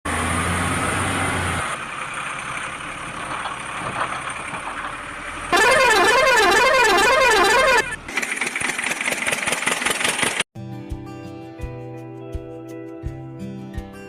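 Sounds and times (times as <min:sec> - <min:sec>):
vehicle engine hum: 0:00.1 - 0:10.5
warbling horn: 0:05.5 - 0:08.0.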